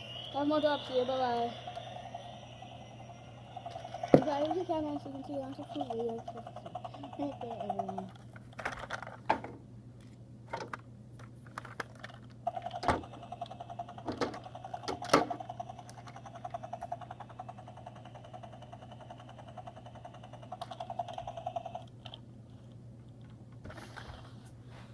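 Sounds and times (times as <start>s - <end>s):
toy helicopter motor whirring: 0.0s - 9.0s, 12.0s - 22.2s.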